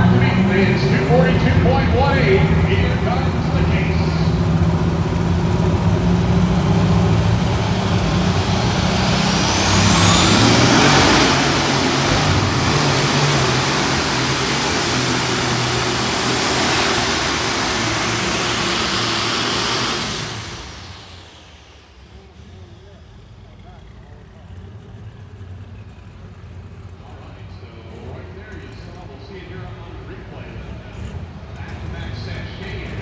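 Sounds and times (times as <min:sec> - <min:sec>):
turbo whine: 0:00.0 - 0:23.6
diesel tractor engine at full power: 0:00.0 - 0:33.0.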